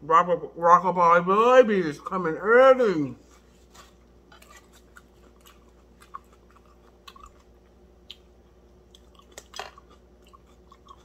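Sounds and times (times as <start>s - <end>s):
person chewing: 3.2s - 11.0s.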